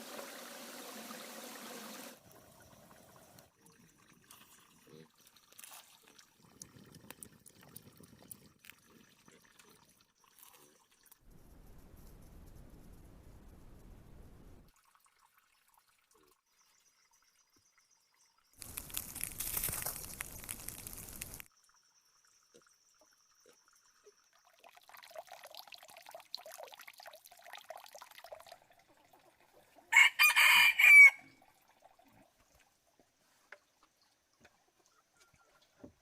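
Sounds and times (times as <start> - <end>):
water trickling and rustling: 0.0 - 11.3, 14.4 - 30.0, 31.2 - 36.0
water splashing: 18.6 - 21.5
rooster crowing: 29.9 - 31.4.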